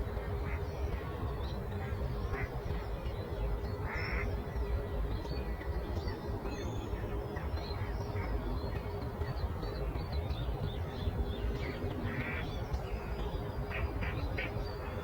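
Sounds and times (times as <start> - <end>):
low rumble of breeze: 0.0 - 15.0.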